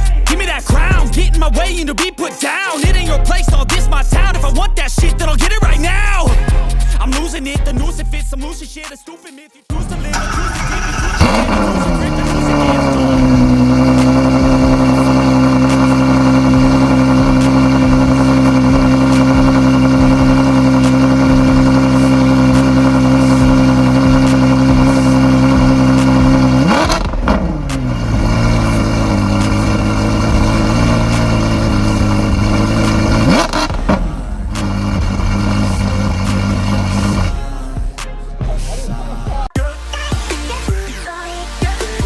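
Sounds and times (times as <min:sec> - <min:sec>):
car engine idling: 0:09.7 - 0:39.5.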